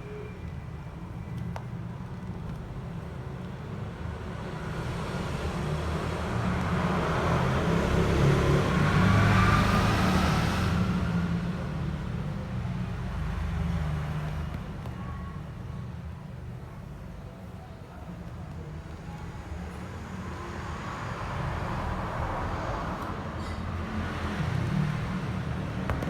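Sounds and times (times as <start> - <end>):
vehicle passing by: 4.7 - 12.0, 20.1 - 26.0.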